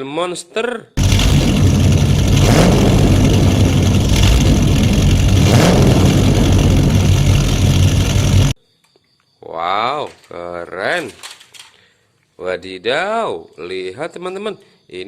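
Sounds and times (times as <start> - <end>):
large vehicle engine revving: 1.0 - 8.6.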